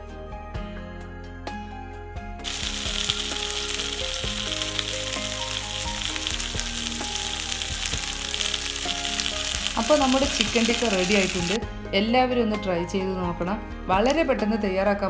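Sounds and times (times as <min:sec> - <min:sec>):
background music: 0:00.0 - 0:15.0
meat sizzling in butter: 0:02.4 - 0:11.6.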